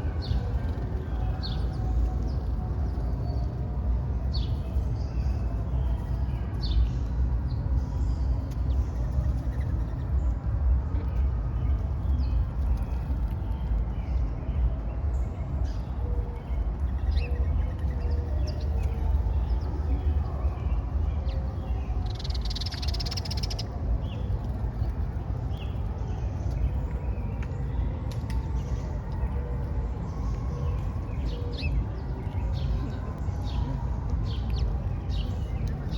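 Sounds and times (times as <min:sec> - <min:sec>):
bird chirps: 0:22.0 - 0:23.7.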